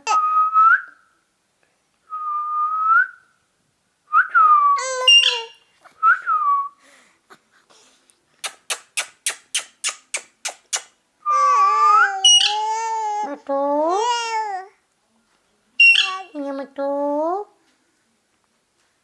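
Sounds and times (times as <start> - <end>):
rough many-toned chirp: 5.0 - 5.6, 15.8 - 16.3.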